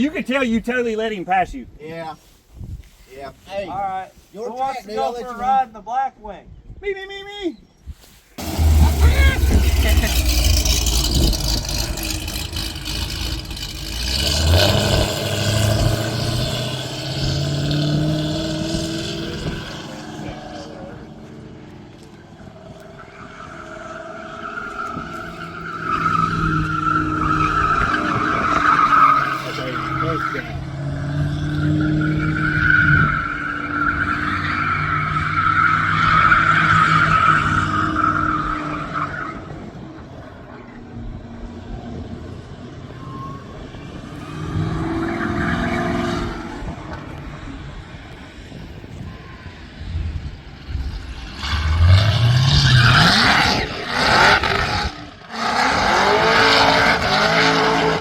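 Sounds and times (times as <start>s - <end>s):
tyres squealing: 8.4s - 18.4s
car engine running hard: 8.4s - 22.9s
race car engine passing by: 8.4s - 39.7s.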